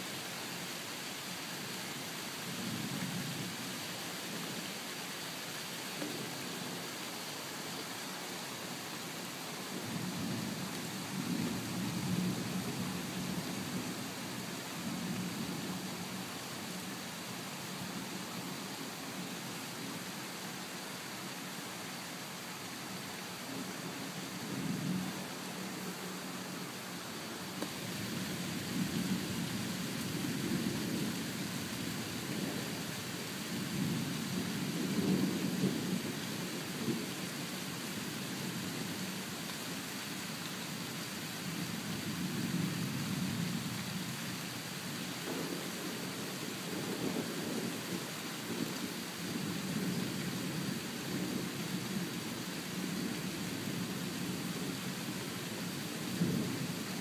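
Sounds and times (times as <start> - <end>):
steady rain: 0.0 - 57.0
low rumble of thunder: 27.7 - 37.2, 45.2 - 55.2, 55.9 - 56.9
thunder rumbling: 45.2 - 48.7.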